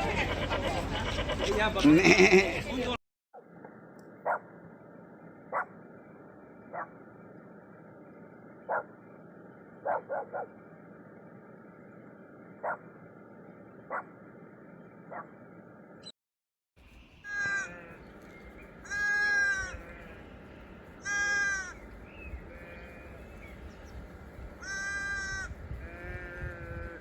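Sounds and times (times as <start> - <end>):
dog barking: 4.2 - 4.6, 5.5 - 5.8, 6.7 - 7.0, 8.7 - 9.0, 9.8 - 10.6, 12.6 - 12.9, 13.9 - 14.2, 15.1 - 15.3.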